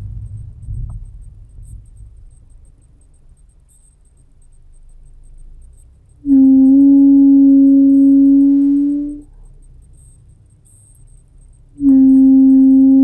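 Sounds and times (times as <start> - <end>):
brakes buzzing hum: 0.0 - 13.0.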